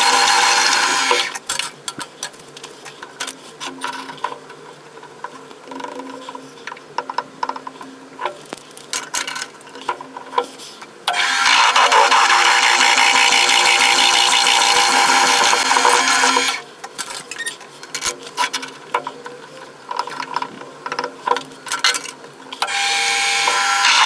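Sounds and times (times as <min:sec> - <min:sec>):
power tool on metal: 0:00.0 - 0:01.4, 0:11.1 - 0:16.6, 0:22.6 - 0:24.0.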